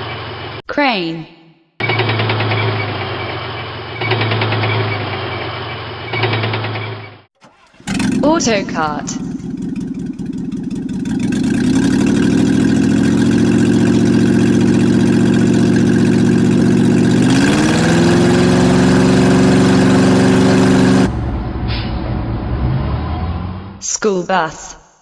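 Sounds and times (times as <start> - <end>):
go-kart engine running: 7.4 - 21.6.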